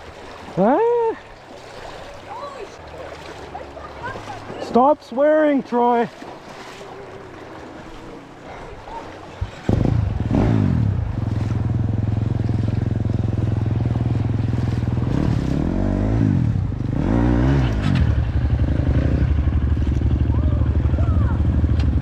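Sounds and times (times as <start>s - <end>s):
dirt bike engine revving: 9.6s - 22.0s.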